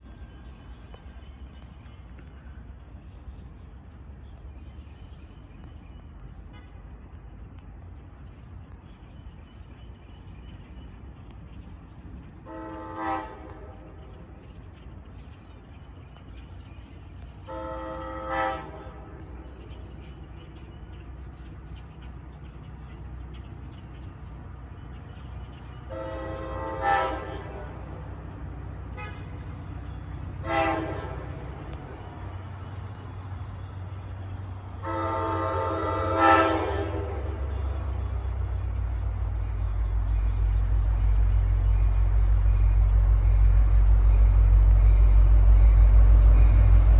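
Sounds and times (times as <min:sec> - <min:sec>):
locomotive engine rumble: 0:00.0 - 0:46.9
locomotive air horn blasts: 0:12.4 - 0:14.0, 0:17.5 - 0:19.3, 0:25.9 - 0:28.0, 0:28.9 - 0:29.4, 0:30.4 - 0:31.6, 0:34.8 - 0:37.5.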